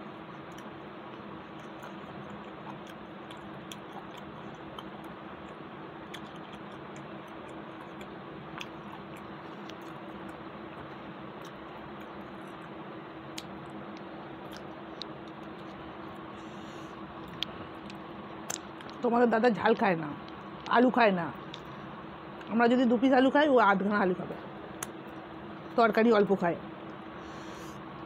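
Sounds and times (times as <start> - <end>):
faint low hum: 0.0 - 28.0
person chewing food: 0.2 - 19.0
soft mouth clicks: 16.4 - 19.0.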